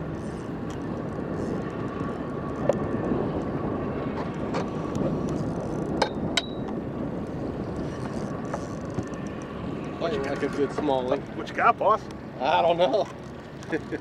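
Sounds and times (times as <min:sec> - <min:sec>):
wind noise on microphone: 0:00.0 - 0:11.6
boat motor running: 0:00.0 - 0:14.0.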